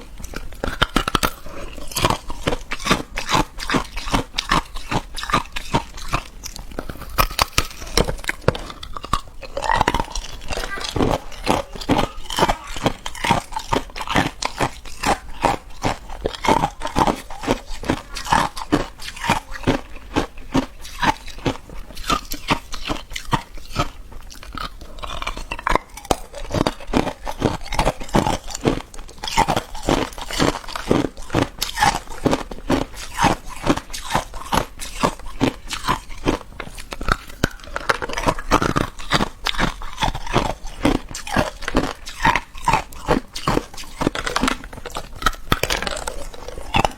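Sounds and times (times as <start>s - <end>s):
teeth crunching ice: 0.0s - 46.9s.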